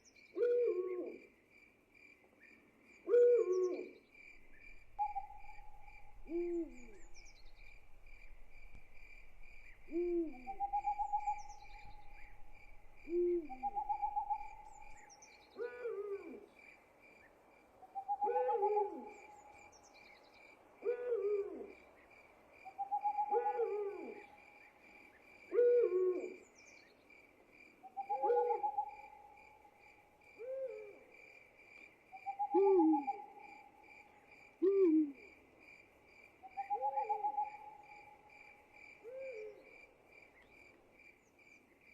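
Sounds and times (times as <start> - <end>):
insects chirping: 1.5 - 41.9
hooting call: 5.0 - 7.2, 9.9 - 12.4, 13.0 - 15.0, 22.8 - 24.4, 28.0 - 29.2, 32.2 - 33.6, 36.6 - 38.2.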